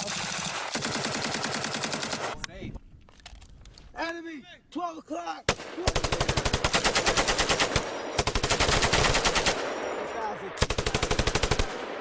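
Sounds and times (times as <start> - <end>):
machine gun bursts: 0.0 - 2.4, 5.9 - 9.7, 10.6 - 11.7.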